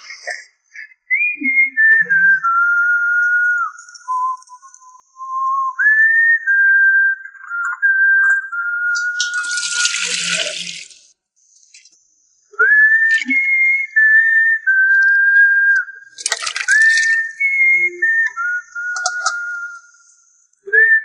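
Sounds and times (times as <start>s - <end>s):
person whistling a tune: 0.0s - 10.7s, 12.5s - 21.0s
running water rush: 9.1s - 11.0s, 16.2s - 17.4s.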